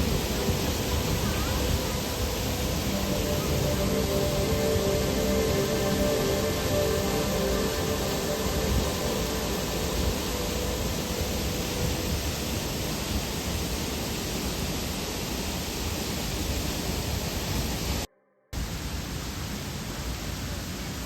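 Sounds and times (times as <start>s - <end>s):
background music: 0.0s - 12.6s
waterfall roaring: 0.0s - 21.0s.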